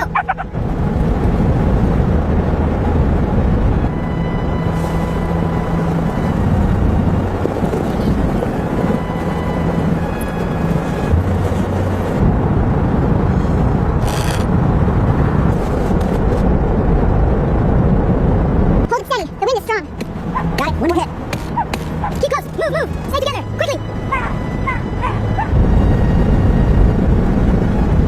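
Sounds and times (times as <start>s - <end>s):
snowstorm wind rushing: 0.0s - 28.0s.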